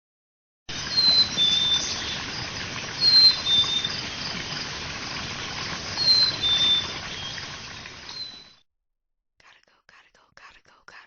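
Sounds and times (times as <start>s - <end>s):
outdoor background noise: 0.7s - 8.6s.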